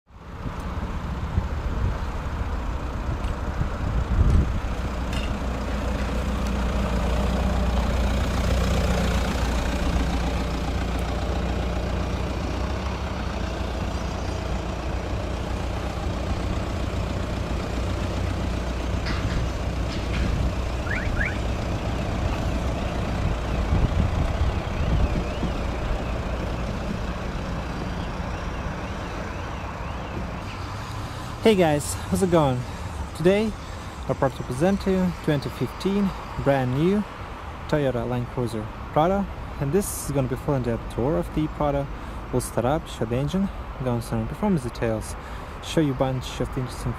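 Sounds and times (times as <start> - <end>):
vehicle engine droning: 0.1 - 46.9.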